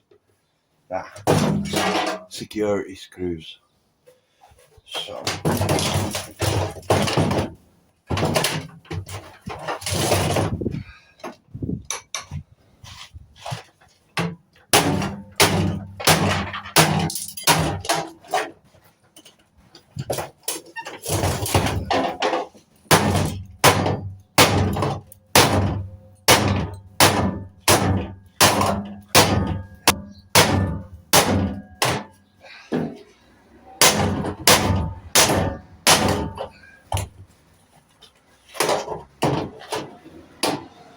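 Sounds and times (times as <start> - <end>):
hand tools clanking on sheet metal: 1.2 - 2.5, 5.0 - 11.0, 14.2 - 18.6, 19.2 - 37.3, 38.5 - 40.9.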